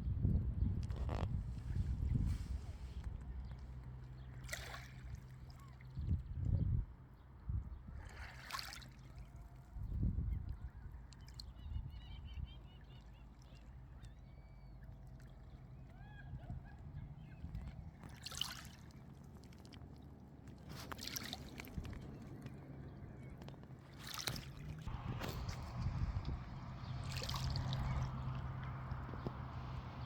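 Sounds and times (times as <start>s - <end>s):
sea water lapping: 1.7s - 6.0s, 7.9s - 9.8s, 10.6s - 30.0s
faint bird calls: 10.5s - 17.8s
low steady rumble: 21.5s - 30.0s
short rushing washes of water: 23.9s - 30.0s.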